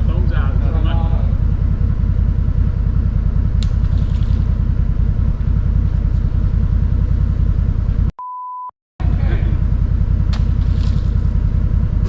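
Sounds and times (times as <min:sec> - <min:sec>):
engine rumbling: 0:00.0 - 0:08.1, 0:09.0 - 0:12.0
censor bleep: 0:08.2 - 0:08.7.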